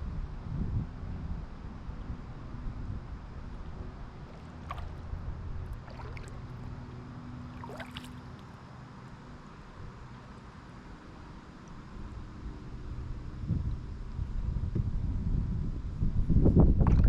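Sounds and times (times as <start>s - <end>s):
wind on microphone: 0.0s - 6.7s, 13.2s - 17.0s
kayak paddle splashing: 3.6s - 8.4s
water dripping: 5.7s - 6.6s, 7.6s - 8.4s.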